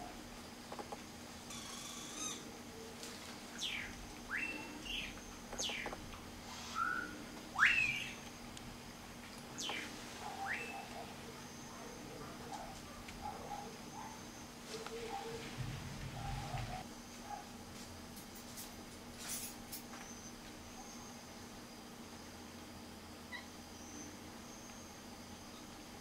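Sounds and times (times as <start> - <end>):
bird whistling sharp notes: 3.6 - 5.8, 6.7 - 8.2, 9.6 - 10.9.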